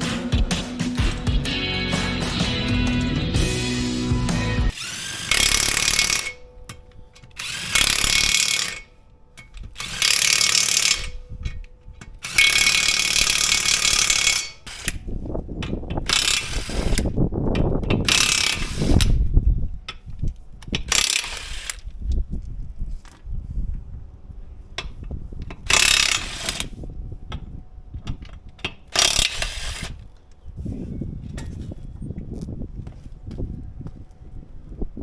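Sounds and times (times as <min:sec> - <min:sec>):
hand ratchet clicking: 0:04.7 - 0:19.2, 0:19.9 - 0:22.2, 0:24.8 - 0:27.4, 0:28.0 - 0:30.0.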